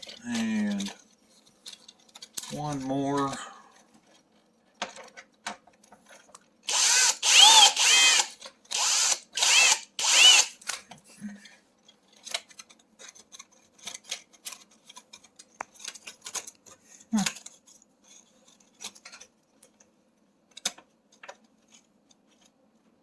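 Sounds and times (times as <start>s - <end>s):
clicks and rattles of handling: 0.0s - 6.7s, 10.6s - 23.0s
power drill whirring: 6.7s - 10.6s.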